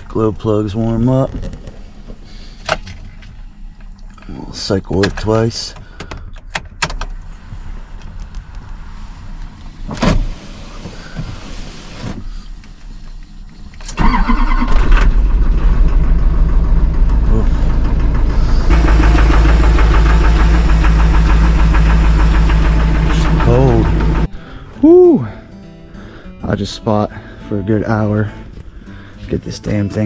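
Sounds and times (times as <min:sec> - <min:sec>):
diesel engine cranking and running: 0:12.2 - 0:24.7.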